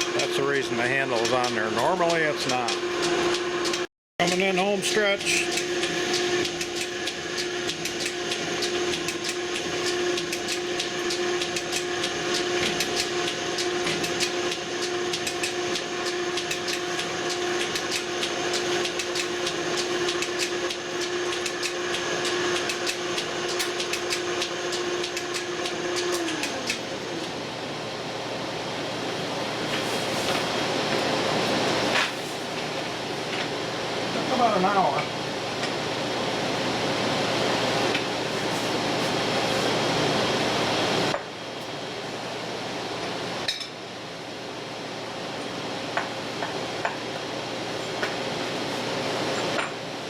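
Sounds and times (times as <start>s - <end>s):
motor hum: 0.0s - 31.8s
machine clicking and clatter: 5.3s - 26.8s.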